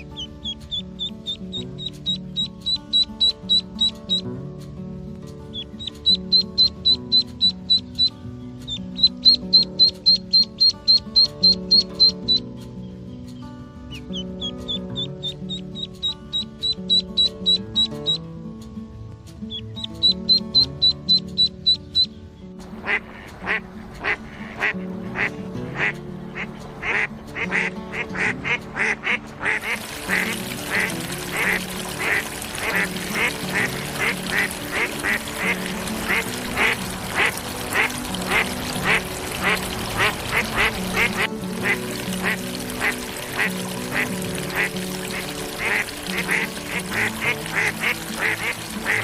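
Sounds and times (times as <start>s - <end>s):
ducklings peeping: 0.0s - 4.2s, 5.5s - 12.4s, 13.9s - 18.2s, 19.5s - 49.0s
background music: 0.0s - 49.0s
steady hiss: 29.4s - 49.0s.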